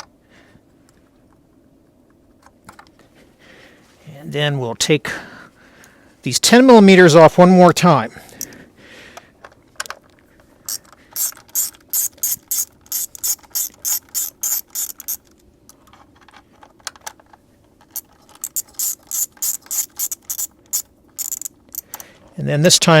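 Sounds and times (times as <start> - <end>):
ratchet wrench clicking: 10.7 - 15.3, 18.0 - 22.0.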